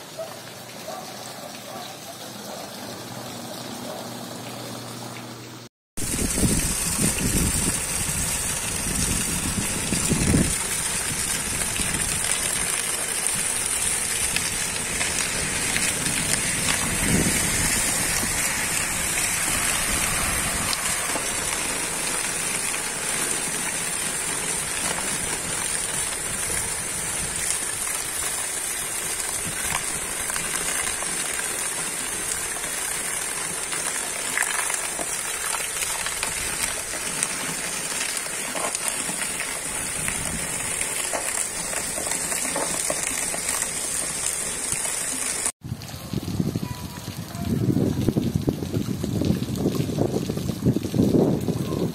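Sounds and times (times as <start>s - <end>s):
water pouring: 6.0s - 46.3s
heavy rain falling: 6.0s - 50.1s
car splashing through floodwater: 14.6s - 26.1s.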